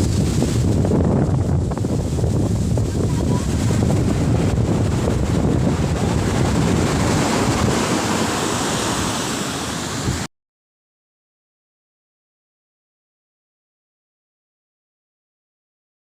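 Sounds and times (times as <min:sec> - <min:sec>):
surf rushing: 0:00.0 - 0:10.3
wind buffeting microphone: 0:00.0 - 0:10.3.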